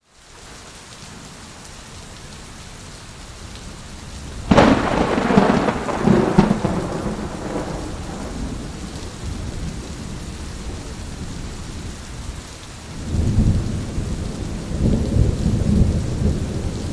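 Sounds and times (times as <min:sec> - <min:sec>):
steady rain: 0:00.0 - 0:16.9
rumbling thunderclap: 0:04.4 - 0:12.3, 0:12.9 - 0:16.9.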